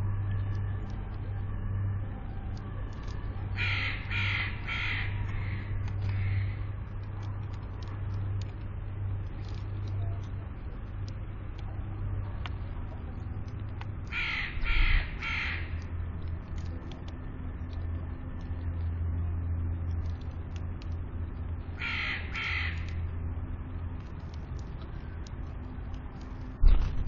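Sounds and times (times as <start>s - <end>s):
steady low hum: 0.0s - 27.0s
crow cawing: 3.5s - 6.7s, 14.0s - 16.0s, 21.8s - 23.1s.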